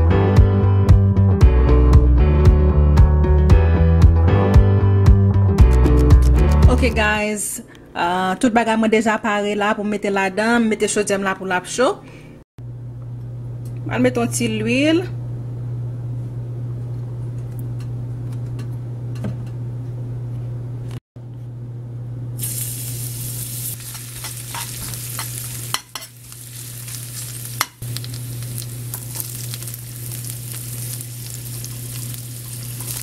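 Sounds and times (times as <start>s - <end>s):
vegetables sizzling in a pan: 22.4s - 33.0s
metal spoon stirring against pan: 23.8s - 26.2s.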